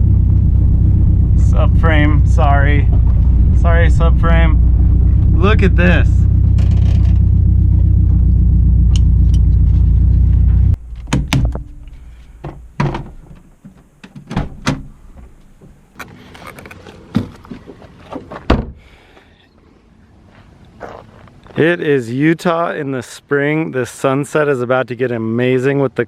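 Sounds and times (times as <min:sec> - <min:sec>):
car engine idling loudly: 0:00.0 - 0:10.8
sharp clicks and thunks: 0:02.8 - 0:03.7, 0:06.3 - 0:18.8.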